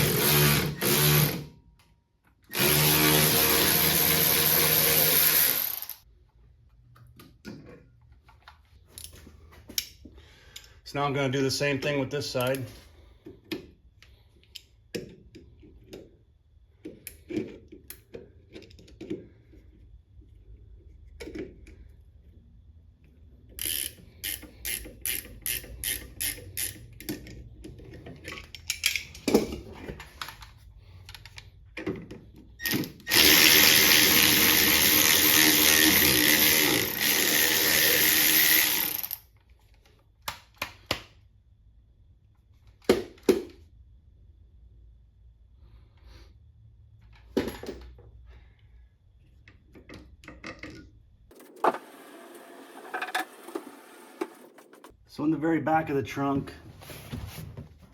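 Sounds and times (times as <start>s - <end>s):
power tool running: 0.0s - 1.5s, 2.5s - 6.0s, 33.1s - 39.2s
wrenches clicking on metal: 23.6s - 27.3s.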